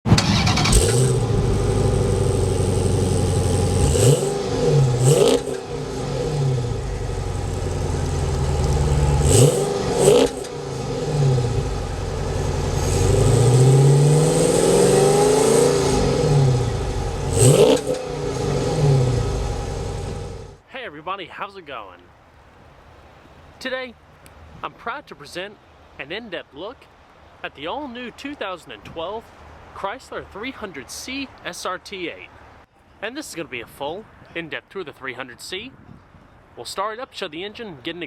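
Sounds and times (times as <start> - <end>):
car engine idling and revving: 0.1 - 20.6.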